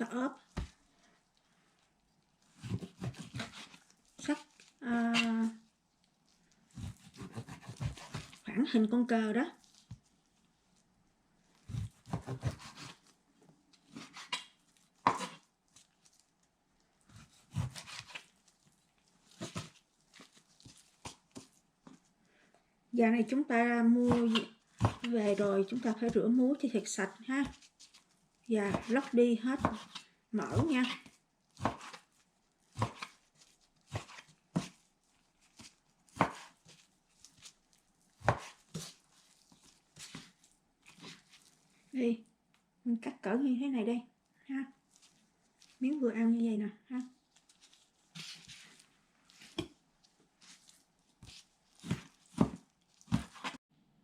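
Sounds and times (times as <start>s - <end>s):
knife slicing raw meat: 2.5s - 5.5s, 6.7s - 8.4s, 11.6s - 13.2s, 13.8s - 16.2s, 17.1s - 18.4s, 24.0s - 26.4s, 27.4s - 41.6s, 47.3s - 49.8s, 50.4s - 53.6s
knife chopping on cutting board: 2.6s - 3.8s, 6.8s - 8.4s, 11.7s - 13.0s, 13.9s - 15.4s, 17.2s - 18.2s, 24.0s - 25.4s, 28.7s - 32.1s, 32.7s - 33.2s, 33.9s - 34.8s, 35.6s - 36.9s, 38.2s - 39.0s, 49.4s - 49.8s, 50.5s - 53.6s.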